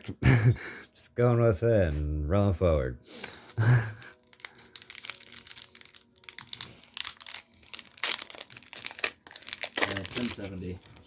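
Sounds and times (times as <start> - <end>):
trading cards rustling: 3.1 - 11.0
foil wrapper crinkling: 3.2 - 11.0.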